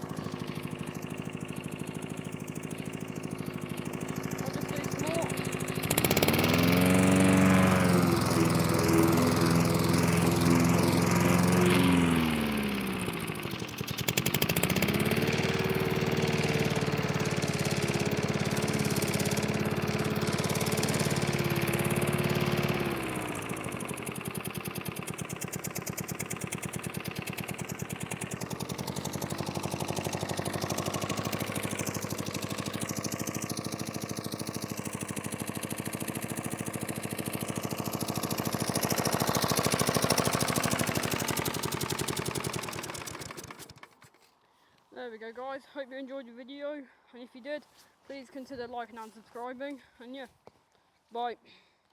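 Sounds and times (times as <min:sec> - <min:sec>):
lawn mower engine running: 0:00.0 - 0:44.4.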